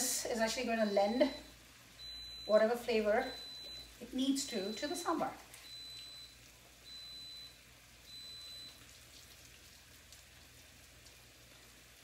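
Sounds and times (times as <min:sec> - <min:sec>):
onions and tomatoes sizzling in pan: 0:10.0 - 0:12.0.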